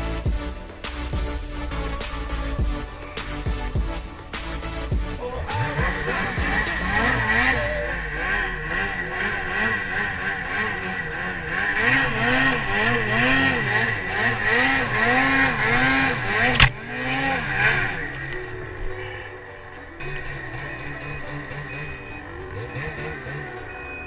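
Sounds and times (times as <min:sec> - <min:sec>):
snowmobile engine revving: 0:00.0 - 0:24.0
sharp click: 0:16.5 - 0:16.8.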